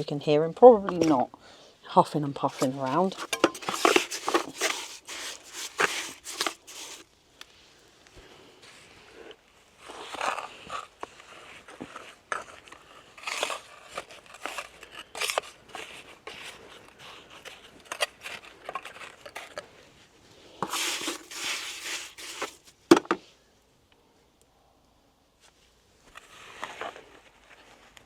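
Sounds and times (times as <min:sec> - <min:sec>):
stone scraping and crunching: 0:02.5 - 0:07.0, 0:20.6 - 0:22.7.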